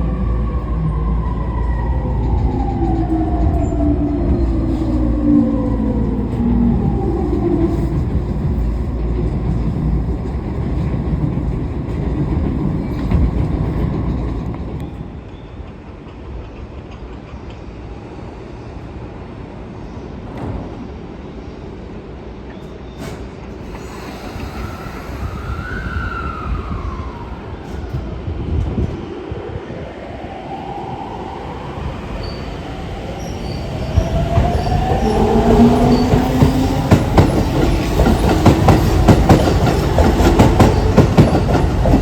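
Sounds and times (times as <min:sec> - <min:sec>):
wheel and track rumble: 0:00.0 - 0:15.2, 0:31.0 - 0:42.0
train inverter whine: 0:00.0 - 0:16.4, 0:22.7 - 0:42.0.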